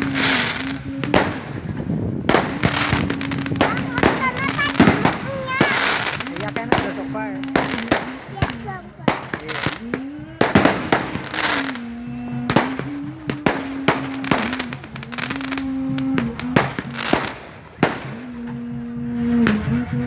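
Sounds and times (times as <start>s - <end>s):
fireworks banging and crackling: 0.0s - 20.0s
music with held melody: 0.0s - 20.0s.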